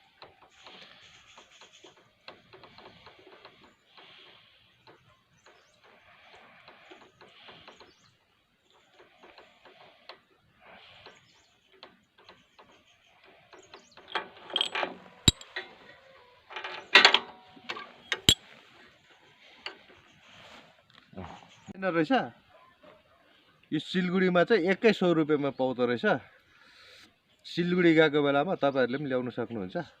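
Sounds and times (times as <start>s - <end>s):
hand tools and metal parts rattling: 11.7s - 20.1s.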